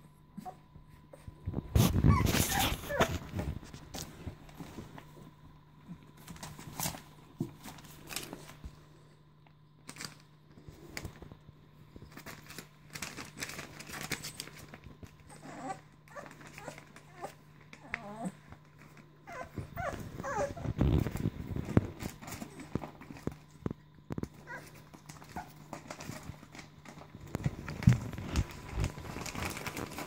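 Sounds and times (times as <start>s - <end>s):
puppies shuffling and scuffling: 0.3s - 9.2s, 9.8s - 30.0s
puppies whimpering: 1.9s - 3.3s, 15.2s - 21.0s.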